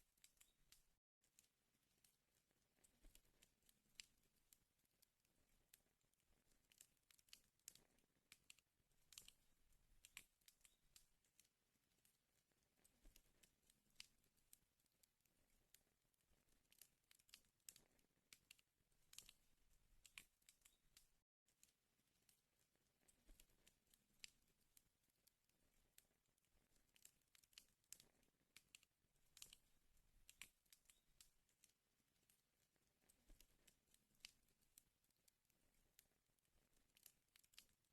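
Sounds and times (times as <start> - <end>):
wood fire crackling: 5.3 - 14.6, 15.3 - 21.2, 25.5 - 32.4.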